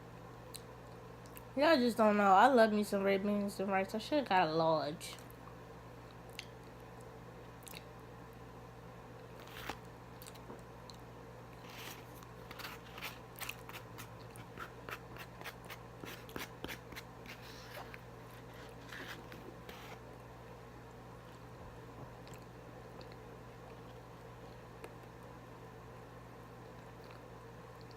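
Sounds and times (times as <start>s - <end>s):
low electrical hum: 0.0s - 27.9s
person chewing crunchy food: 9.4s - 20.0s.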